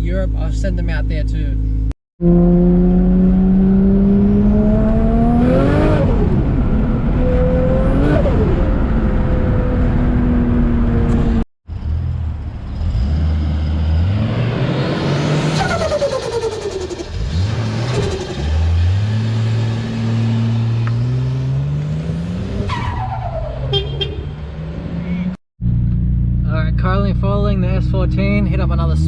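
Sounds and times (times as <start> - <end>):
car engine accelerating hard: 2.2 - 22.7.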